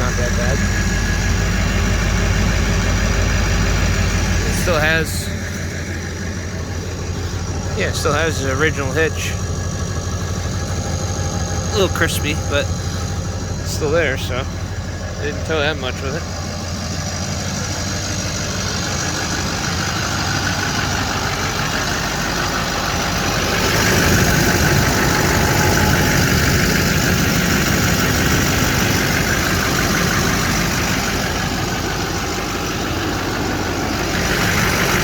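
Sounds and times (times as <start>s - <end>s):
engine idling: 0.0s - 35.0s
rushing noise: 22.9s - 29.0s.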